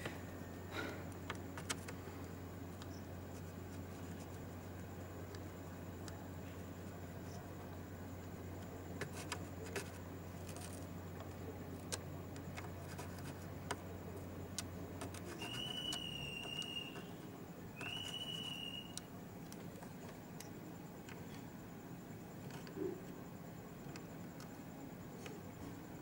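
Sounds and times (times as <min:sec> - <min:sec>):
high whistling tones: 0:15.3 - 0:19.1.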